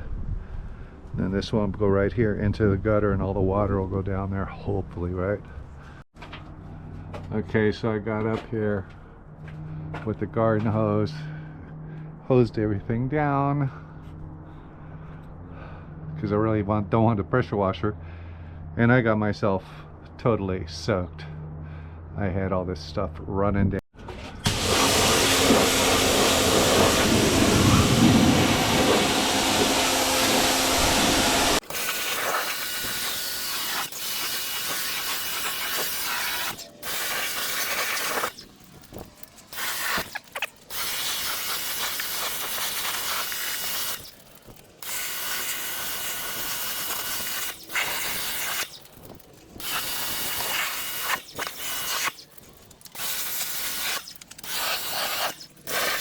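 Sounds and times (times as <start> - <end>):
pressure washer motor hum: 24.4 - 56.0
pressure washer spraying hiss: 24.5 - 38.5, 39.5 - 44.2, 44.8 - 48.9, 49.6 - 52.3, 52.9 - 56.0.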